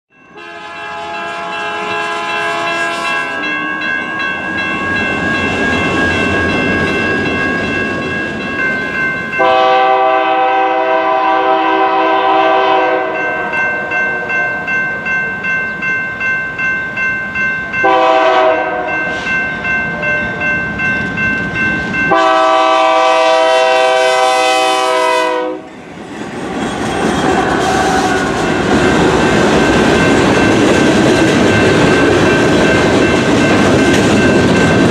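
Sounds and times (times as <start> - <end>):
train horn blasts: 0.3 - 3.8, 9.4 - 14.7, 17.8 - 19.3, 22.1 - 25.7
train wheels clicking over rail joints: 25.7 - 34.9.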